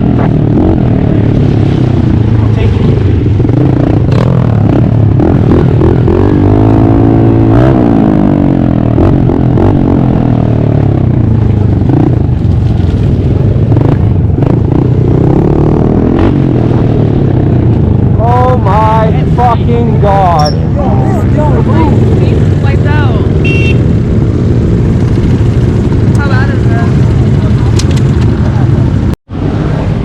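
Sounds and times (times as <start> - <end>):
pit bike engine revving: 0.0 - 12.4, 13.6 - 29.1.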